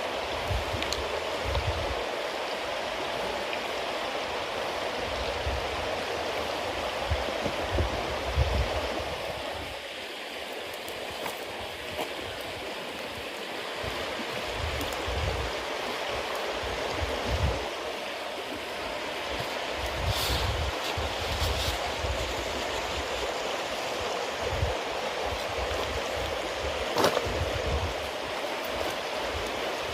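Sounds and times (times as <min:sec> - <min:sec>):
bonfire hissing: 0:00.0 - 0:29.9.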